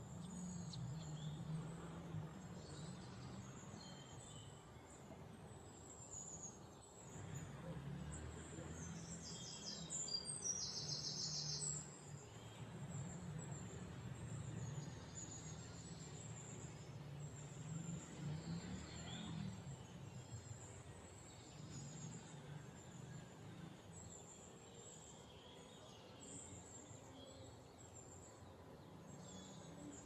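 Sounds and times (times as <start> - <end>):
small birds chirping: 8.7 - 30.0.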